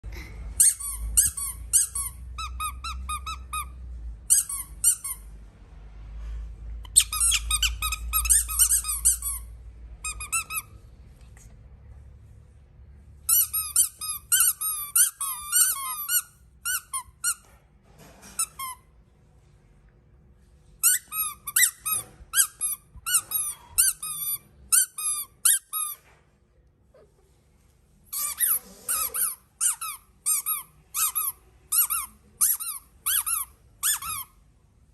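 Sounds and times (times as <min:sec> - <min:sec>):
squeaky baby toys squeaking: 0:00.5 - 0:05.3, 0:06.8 - 0:10.8, 0:13.2 - 0:17.5, 0:20.8 - 0:26.0, 0:28.1 - 0:34.4.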